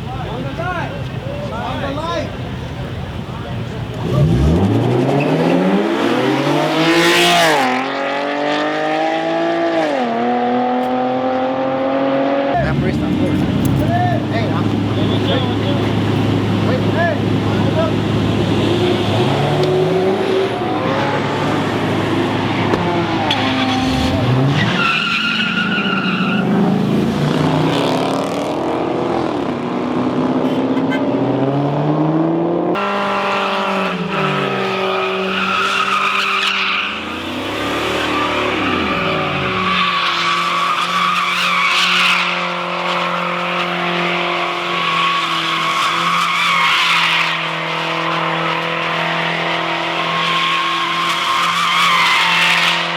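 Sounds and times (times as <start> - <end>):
car engines revving: 0.0 - 52.9
tyre squeal: 17.6 - 26.6, 34.2 - 52.9.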